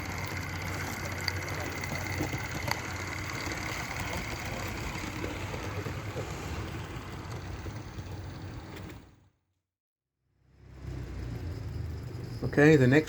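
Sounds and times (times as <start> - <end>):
model steam locomotive hiss and hum: 0.0 - 9.0.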